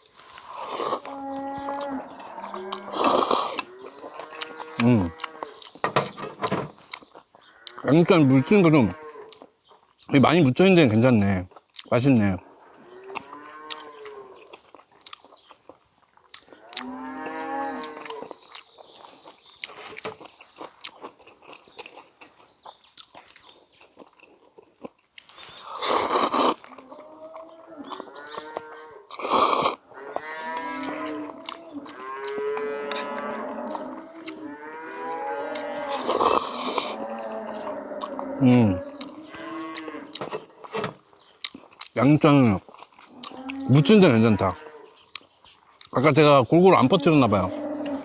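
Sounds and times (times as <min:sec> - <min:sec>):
chewing clicks: 0:00.1 - 0:07.9, 0:09.2 - 0:12.2, 0:12.9 - 0:44.1, 0:45.0 - 0:46.3
cattle mooing: 0:01.0 - 0:06.7, 0:07.6 - 0:09.3, 0:16.6 - 0:18.3, 0:29.9 - 0:40.2, 0:43.2 - 0:44.9, 0:46.8 - 0:48.0.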